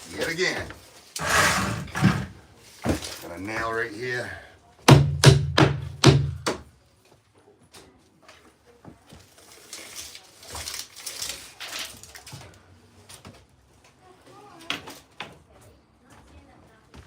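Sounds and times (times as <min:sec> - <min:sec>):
rustling and scraping of material: 0:00.0 - 0:04.0, 0:06.9 - 0:17.0
hammer striking nail: 0:04.9 - 0:06.6.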